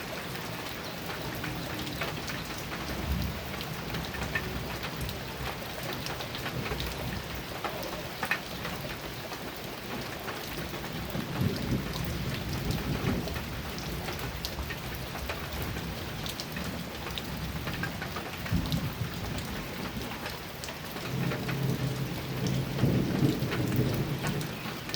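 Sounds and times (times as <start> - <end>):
heavy rain on a metal roof: 0.0 - 24.9
low thunder rumbling: 1.3 - 5.6, 10.6 - 20.2, 20.9 - 24.9.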